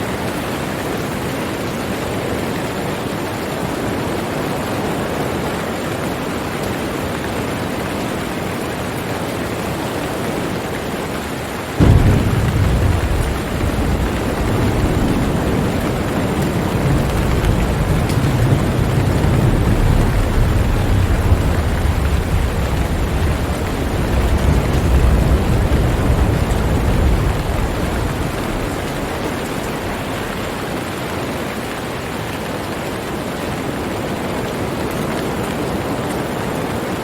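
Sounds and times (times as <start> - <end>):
rain hiss: 0.0 - 37.0
thunder rumble: 11.8 - 31.2.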